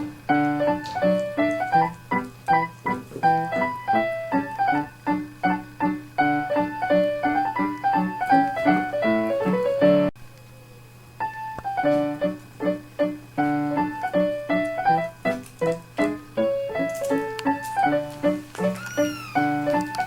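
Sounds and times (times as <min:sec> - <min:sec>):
piano music quick notes: 0:00.0 - 0:10.1, 0:11.3 - 0:20.0.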